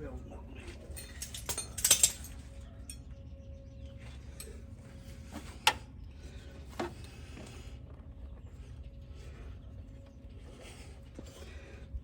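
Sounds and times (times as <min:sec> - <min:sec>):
low steady hum: 0:00.0 - 0:12.0
hand tools clinking on metal: 0:00.8 - 0:03.1.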